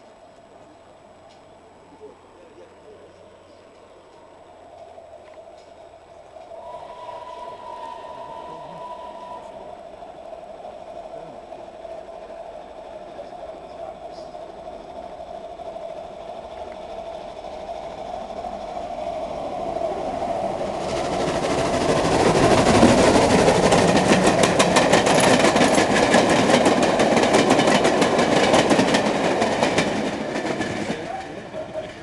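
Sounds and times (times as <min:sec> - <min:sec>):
steam train passing: 0:00.0 - 0:32.0
wheels clattering over rail joints: 0:11.1 - 0:32.0.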